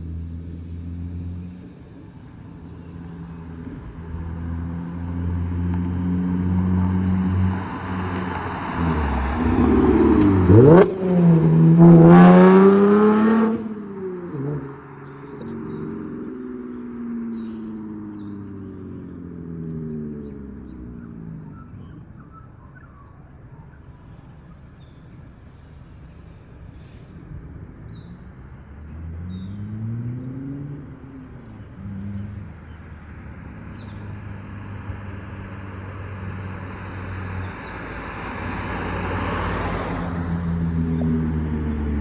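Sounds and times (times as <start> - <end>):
tyre and road noise: 0.0 - 42.0
car engine revving: 3.1 - 21.7.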